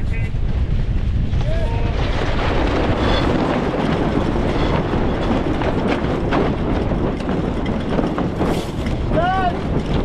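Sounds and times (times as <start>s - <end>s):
wind buffeting microphone: 0.0s - 10.0s
water rushing along hull: 1.5s - 10.0s.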